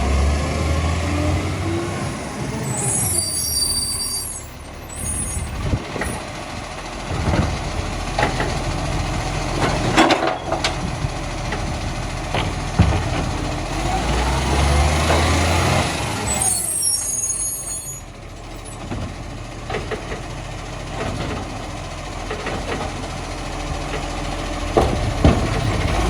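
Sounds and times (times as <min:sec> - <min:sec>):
truck diesel engine running: 0:00.0 - 0:26.0
knocks and clatter: 0:07.0 - 0:15.6, 0:18.8 - 0:26.0.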